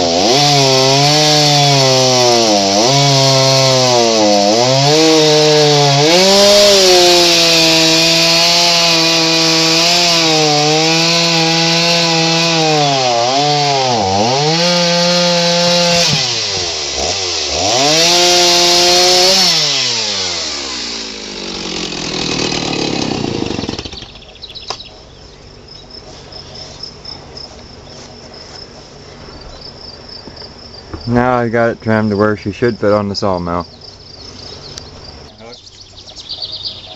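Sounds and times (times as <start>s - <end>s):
chainsaw cutting log: 0.0s - 24.9s
insects chirping faintly: 24.0s - 36.9s.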